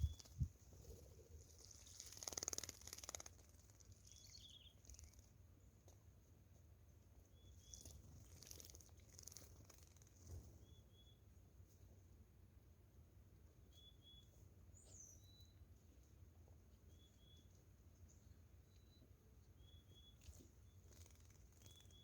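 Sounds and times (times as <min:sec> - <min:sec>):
high bird chirps: 0:00.0 - 0:00.5, 0:03.8 - 0:05.3, 0:07.3 - 0:11.2, 0:16.9 - 0:17.5, 0:19.6 - 0:22.0.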